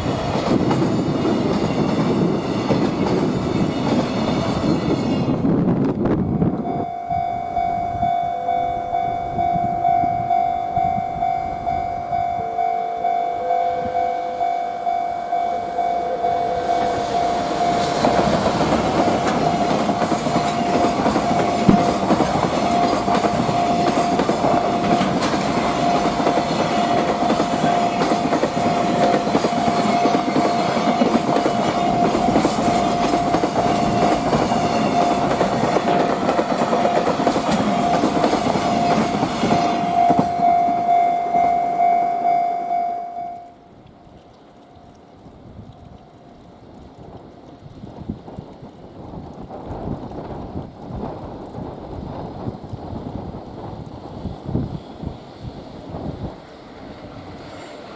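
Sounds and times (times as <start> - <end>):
train wheels clacking over rail joints: 0.0 - 6.0, 17.5 - 40.9
steady high-pitched tone: 6.6 - 43.7
rumble of passing wagons: 16.3 - 41.0.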